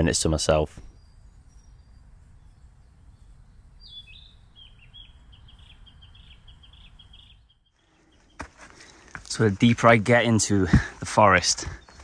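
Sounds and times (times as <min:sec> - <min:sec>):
small songbird singing: 0:00.2 - 0:08.4, 0:11.4 - 0:12.0.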